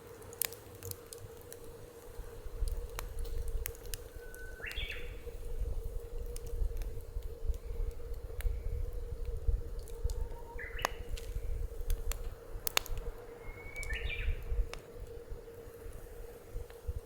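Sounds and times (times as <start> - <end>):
wood fire crackling: 0.0 - 17.0
wind on microphone: 1.5 - 17.0
bird chirping: 4.1 - 5.3, 10.2 - 11.1, 13.3 - 14.5.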